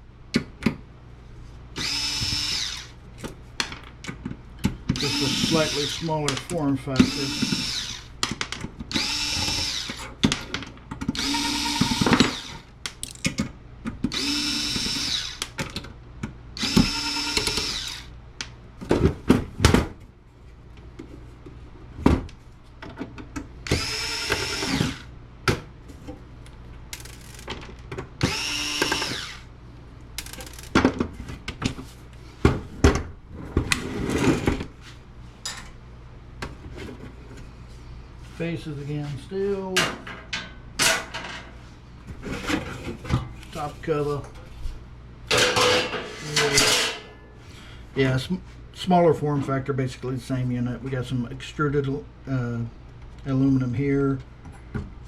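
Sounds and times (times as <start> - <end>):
power screwdriver spinning: 16.6 - 18.1, 28.2 - 29.4.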